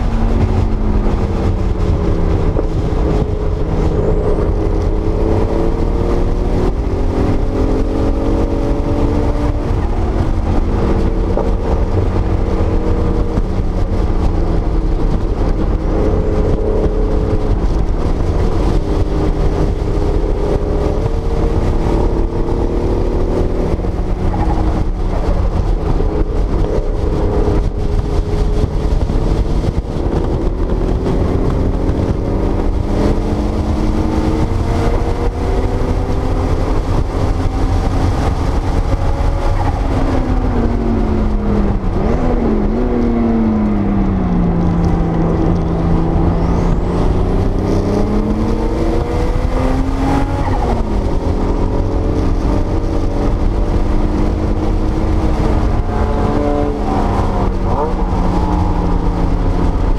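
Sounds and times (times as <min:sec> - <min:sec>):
car engine revving from inside cabin: 0:18.6 - 0:59.9.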